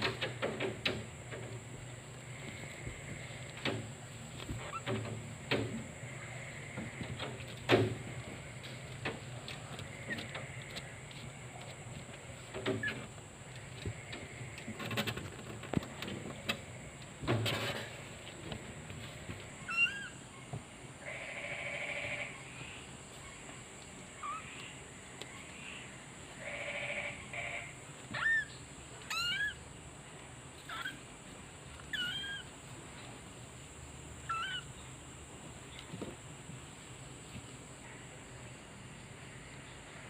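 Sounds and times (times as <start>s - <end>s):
knocks and bumps: 0.0s - 10.6s, 13.8s - 19.6s
kitten mewing: 29.1s - 29.6s, 31.9s - 32.5s, 34.3s - 34.7s.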